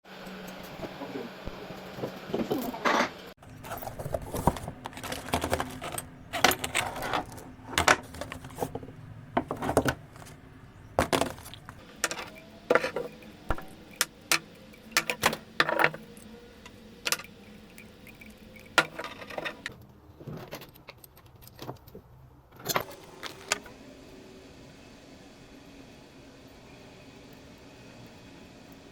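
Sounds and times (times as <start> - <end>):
metallic clinks of tools and fittings: 12.0 - 16.1.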